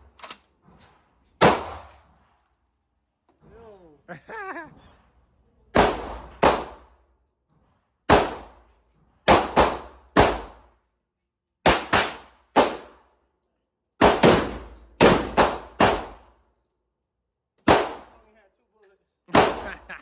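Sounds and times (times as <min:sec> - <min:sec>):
gunshots with short echo: 0:01.4 - 0:01.9, 0:05.8 - 0:06.8, 0:08.1 - 0:08.6, 0:09.3 - 0:10.6, 0:14.0 - 0:16.2, 0:17.7 - 0:18.2, 0:19.3 - 0:20.0.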